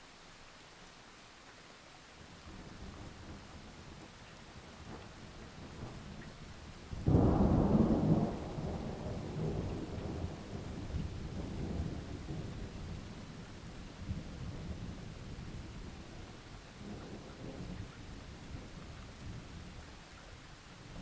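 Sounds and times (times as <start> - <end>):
steady rain: 0.0 - 21.0
thunder rumbling: 7.0 - 13.0.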